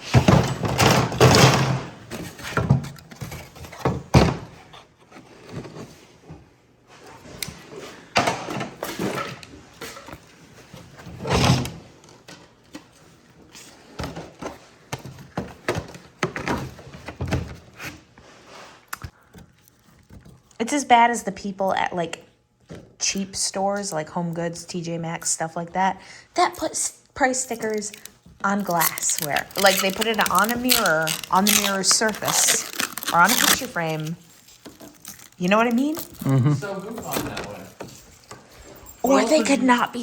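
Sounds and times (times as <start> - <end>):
scraping and rustling handling: 27.4 - 40.0.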